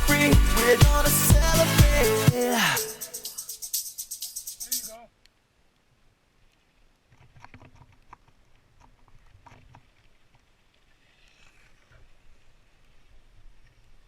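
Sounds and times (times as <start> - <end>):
faint small clicks and knocks: 6.5 - 12.1.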